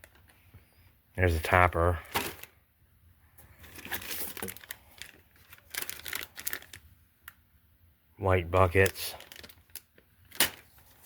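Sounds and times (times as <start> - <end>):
plastic bags crinkling: 0.0 - 0.4, 1.9 - 2.6, 3.6 - 7.4, 8.6 - 11.0.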